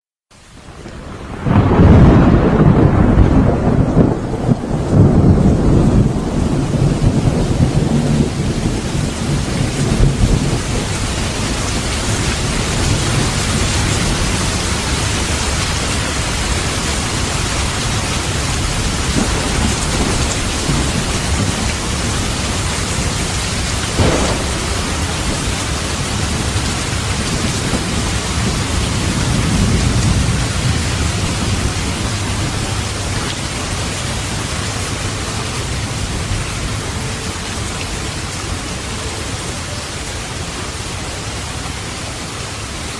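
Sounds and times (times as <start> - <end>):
heavy rain: 0.3 - 42.9
thunder rumbling: 0.6 - 37.2
sharp thunder crack: 1.2 - 10.6, 23.6 - 31.8.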